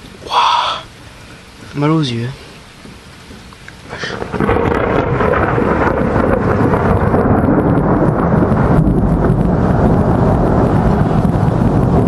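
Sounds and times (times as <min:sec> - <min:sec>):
thunder rumbling: 0:02.7 - 0:12.0.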